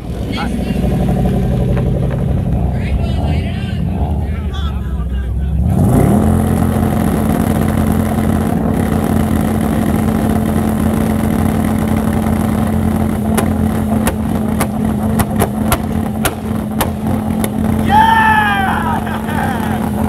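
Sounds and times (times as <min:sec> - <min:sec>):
car engine revving high: 0:00.0 - 0:20.0
engine sharp cracks: 0:05.7 - 0:20.0.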